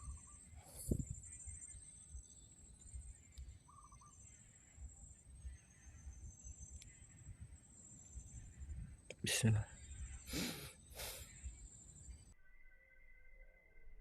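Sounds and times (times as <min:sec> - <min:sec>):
warbled bird call: 0:00.0 - 0:01.6, 0:03.6 - 0:04.5.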